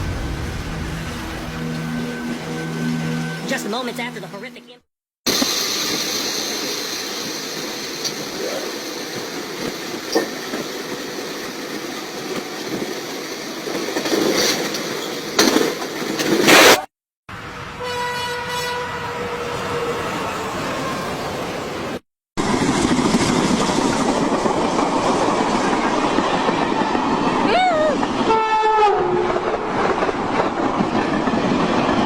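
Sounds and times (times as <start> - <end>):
train running on rails: 0.0 - 4.7, 5.3 - 32.0
horn-like tone: 17.4 - 19.9.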